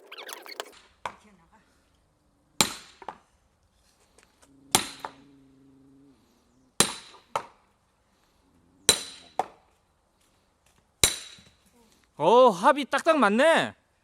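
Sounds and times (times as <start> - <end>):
axe chopping firewood: 2.6 - 3.2, 4.8 - 5.2, 6.8 - 7.6, 8.9 - 9.6, 11.0 - 11.6.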